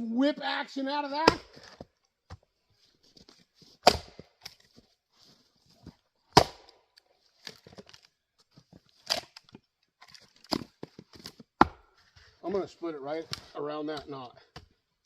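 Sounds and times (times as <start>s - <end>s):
axe splitting firewood: 1.2s - 2.4s, 3.2s - 4.8s, 5.8s - 8.1s, 8.9s - 11.9s.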